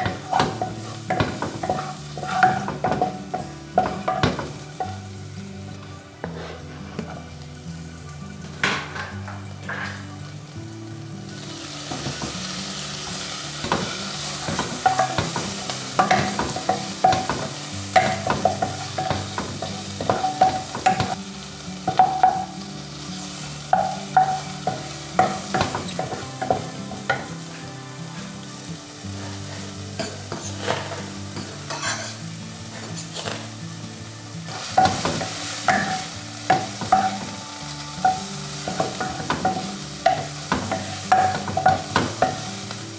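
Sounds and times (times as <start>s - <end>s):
utensil scraping a pan: 0.0s - 5.0s, 6.2s - 7.3s, 29.1s - 33.6s
food sizzling in a frying pan: 0.0s - 42.9s.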